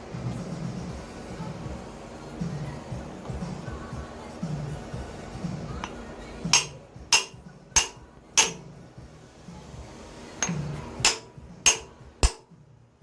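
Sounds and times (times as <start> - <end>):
hammer striking metal: 5.8 - 8.7, 10.4 - 12.5.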